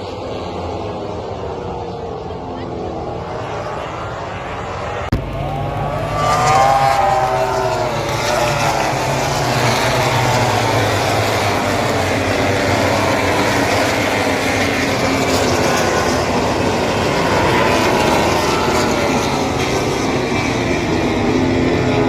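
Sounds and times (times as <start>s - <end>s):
racing motorcycles passing: 3.2s - 22.0s
steady mechanical din: 5.1s - 7.4s.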